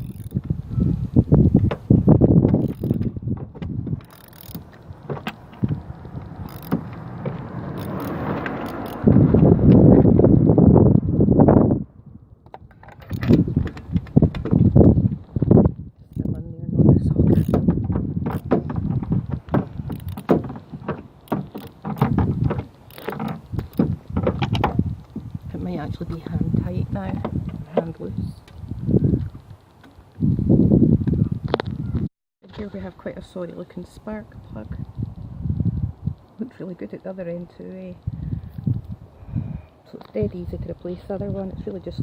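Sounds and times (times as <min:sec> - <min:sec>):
socket wrench clicking: 0:00.0 - 0:00.4, 0:02.5 - 0:03.1, 0:04.0 - 0:07.0, 0:07.7 - 0:09.1, 0:12.5 - 0:13.5, 0:17.3 - 0:17.6, 0:18.3 - 0:18.5, 0:19.9 - 0:20.4, 0:21.2 - 0:24.6
handling rumble: 0:00.0 - 0:32.0
low microphone rumble: 0:04.6 - 0:12.4.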